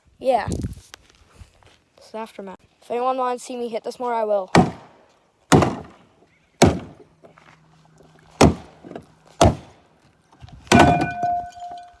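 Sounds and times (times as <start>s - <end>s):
metallic ringing tone: 10.8s - 12.0s.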